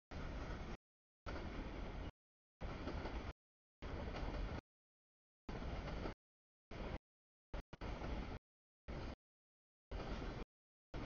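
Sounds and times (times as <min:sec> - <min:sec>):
train wheels rolling on rails: 0:00.1 - 0:04.6, 0:05.5 - 0:07.0, 0:07.6 - 0:09.2, 0:09.9 - 0:11.0.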